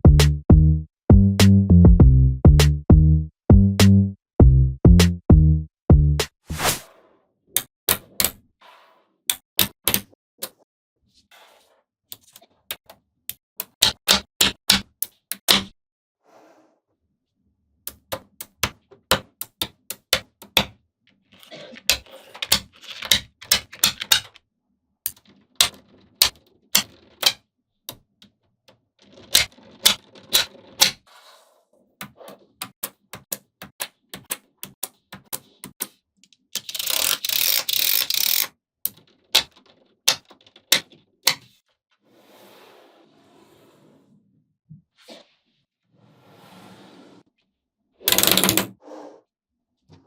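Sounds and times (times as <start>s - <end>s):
magnetic balls clicking together: 48.1s - 48.7s.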